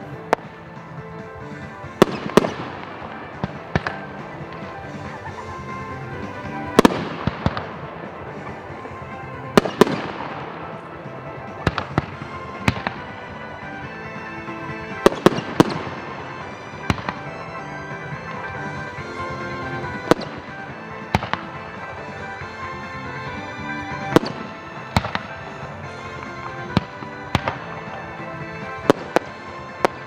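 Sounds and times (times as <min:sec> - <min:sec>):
background music: 0:00.0 - 0:30.0
firework shells bursting: 0:00.0 - 0:30.0.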